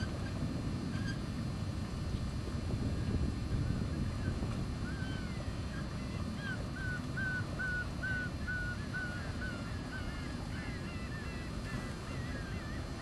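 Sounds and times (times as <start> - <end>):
steady low rumble: 0.0 - 13.0
birds chirping: 4.0 - 13.0.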